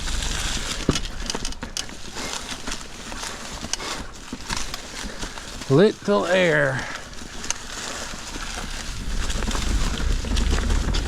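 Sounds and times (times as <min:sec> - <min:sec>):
bike tyres knocking on rocks: 0:00.0 - 0:11.0
wind rumble on microphone: 0:08.2 - 0:11.0.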